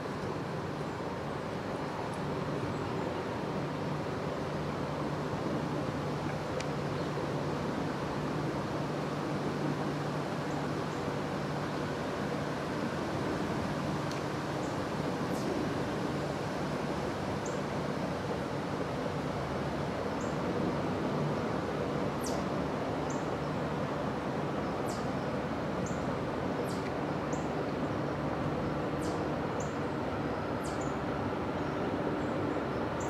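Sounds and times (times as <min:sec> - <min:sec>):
steady background hiss: 0:00.0 - 0:33.0
small birds calling: 0:24.8 - 0:25.1, 0:30.6 - 0:31.0.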